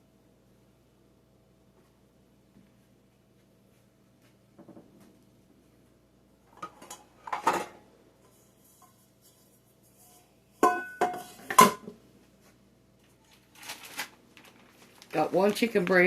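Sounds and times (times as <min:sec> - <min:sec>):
pots and dishes rattling: 0:10.6 - 0:11.8.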